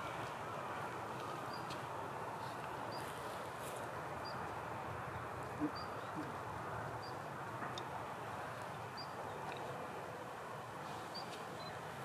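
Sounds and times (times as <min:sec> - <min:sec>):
bird chirping: 0:05.5 - 0:06.4.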